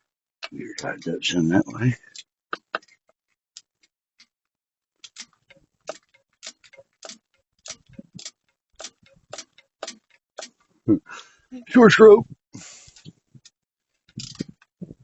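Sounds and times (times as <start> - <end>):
hand ratchet clicking: 5.0 - 10.6.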